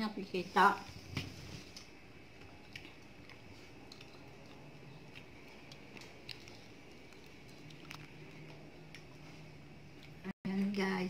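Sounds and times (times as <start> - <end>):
faint chewing: 1.7 - 10.8.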